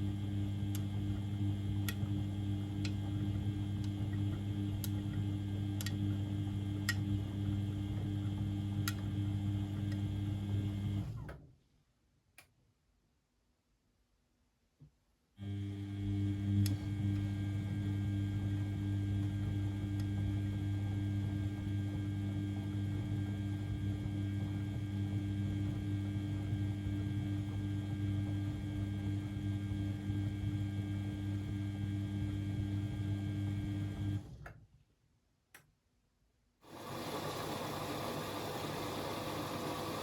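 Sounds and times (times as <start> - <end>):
washing machine electric hum: 0.0 - 11.4, 15.4 - 34.5, 36.6 - 40.0
click: 0.7 - 0.9, 1.8 - 2.1, 2.8 - 3.0, 3.8 - 5.2, 5.8 - 6.0, 6.8 - 7.1, 8.8 - 9.1, 12.3 - 12.6, 16.6 - 17.3, 19.9 - 20.2, 35.5 - 35.7.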